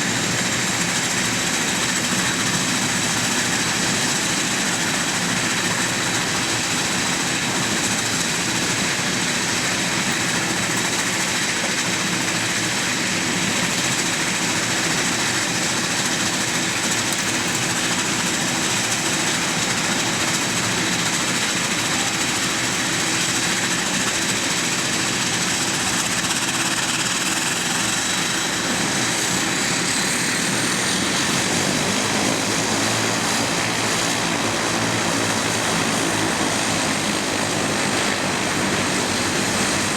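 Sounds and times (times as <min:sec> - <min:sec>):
high turbine whine: 0:00.0 - 0:39.9
turboprop engines running: 0:00.0 - 0:39.9.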